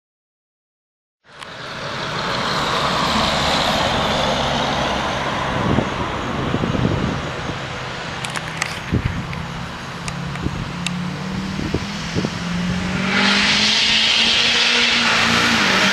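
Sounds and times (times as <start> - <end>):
diesel engine running hard: 1.3 - 15.9
sharp clicks: 8.2 - 11.0.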